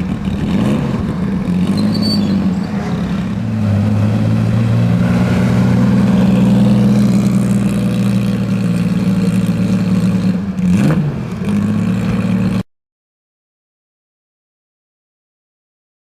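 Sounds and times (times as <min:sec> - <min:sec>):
race car engine idling: 0:04.3 - 0:12.6.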